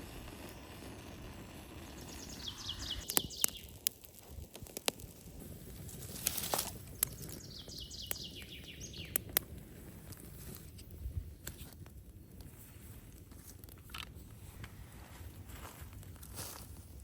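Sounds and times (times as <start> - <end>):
faint woodland background noise: 0.0 - 17.0
songbird singing falling notes: 2.0 - 3.8, 7.0 - 9.4.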